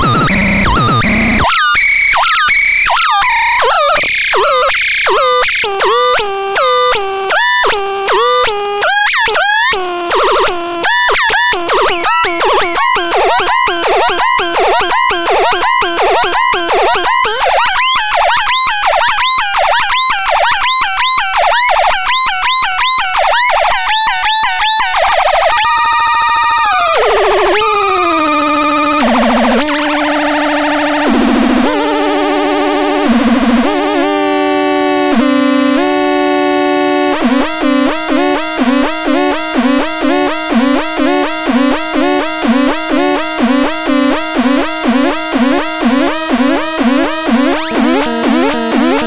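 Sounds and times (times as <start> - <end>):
synthesizer swooping notes: 22.9 - 37.0
buzzy synthesizer chord sliding down: 23.7 - 49.0.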